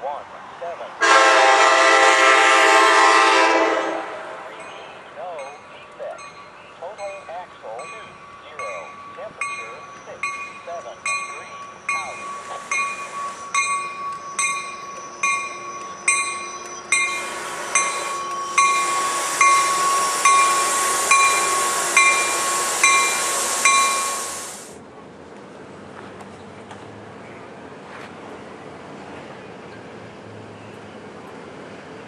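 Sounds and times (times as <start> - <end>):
train rushing on rails: 0.0 - 32.0
warning bell clanging: 4.5 - 24.2.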